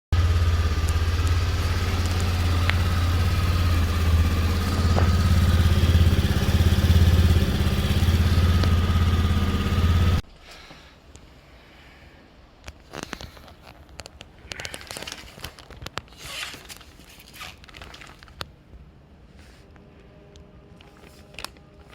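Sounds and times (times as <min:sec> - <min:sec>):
scooter engine idling: 0:00.1 - 0:10.2.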